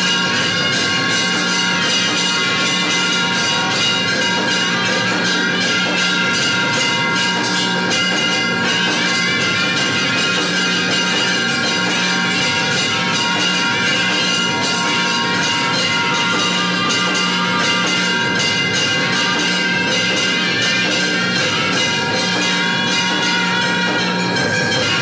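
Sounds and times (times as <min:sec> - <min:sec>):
temple bells ringing rapidly: 0:00.0 - 0:25.0.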